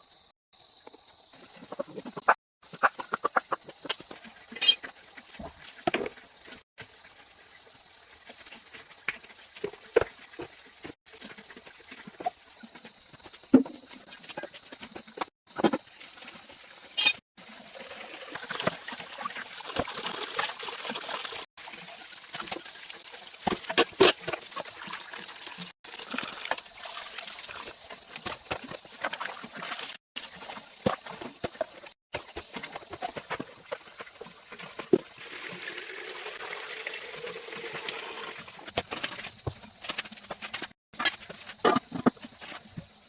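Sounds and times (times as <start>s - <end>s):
water trickling and splashing: 15.8s - 38.6s.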